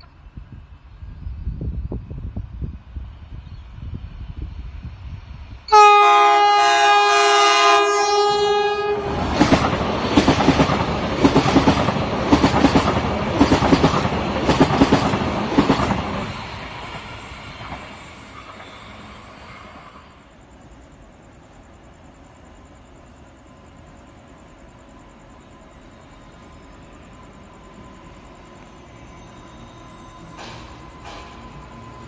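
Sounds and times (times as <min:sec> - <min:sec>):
train horn blast: 0:05.7 - 0:09.4
train wheels clacking over rail joints: 0:09.2 - 0:18.9, 0:30.3 - 0:31.9.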